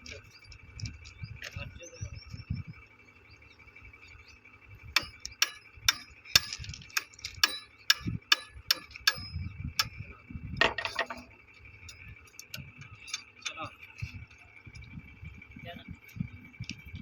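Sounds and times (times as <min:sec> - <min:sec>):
sharp metallic taps: 0:05.0 - 0:10.0.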